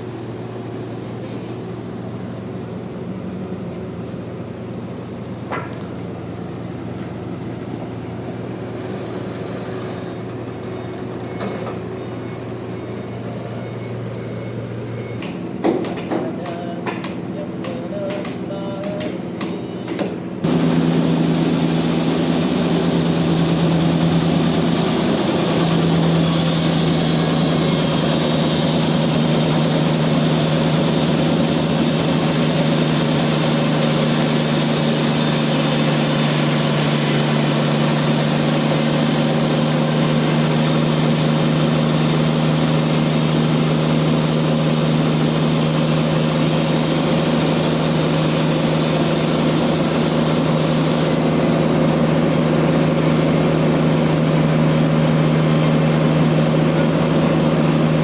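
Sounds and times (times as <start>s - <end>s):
sawmill machinery humming: 0.0s - 58.0s.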